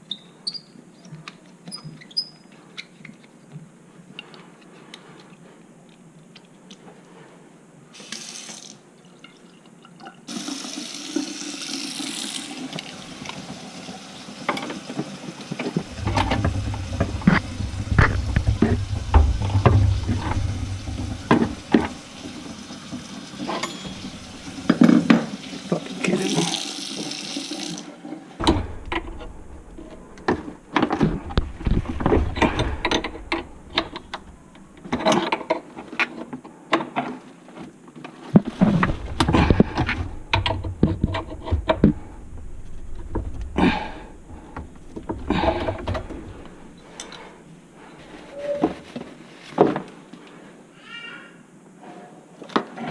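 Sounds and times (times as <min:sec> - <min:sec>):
water running: 0:10.3 - 0:35.2, 0:38.4 - 0:48.2
sharp knocks and clatter: 0:14.4 - 0:25.4, 0:28.4 - 0:35.6, 0:38.4 - 0:48.2.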